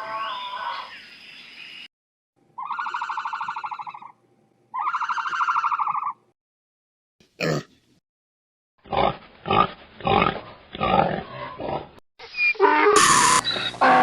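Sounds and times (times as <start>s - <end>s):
pig grunting: 8.8s - 12.0s.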